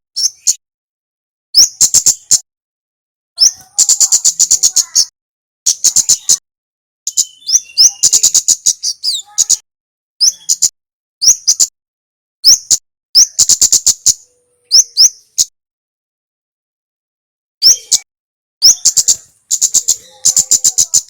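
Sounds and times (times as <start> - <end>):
bird calling high chips: 0.2 - 0.6, 3.4 - 5.1, 5.7 - 6.4, 7.1 - 9.6, 12.4 - 15.5, 17.6 - 21.0.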